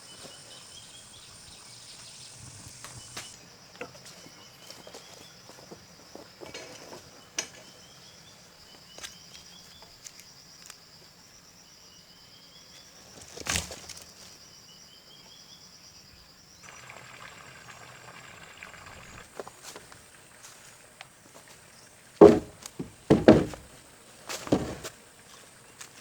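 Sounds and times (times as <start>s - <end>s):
light knocks: 22.2s - 23.7s, 24.4s - 24.9s.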